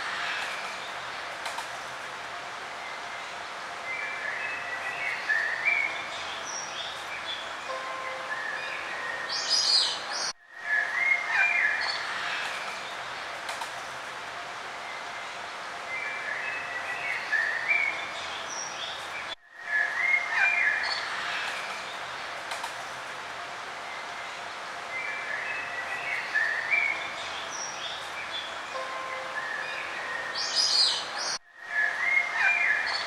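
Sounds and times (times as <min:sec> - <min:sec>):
steady outdoor hiss: 0:00.0 - 0:33.0
songbirds chirping and singing: 0:24.0 - 0:33.0.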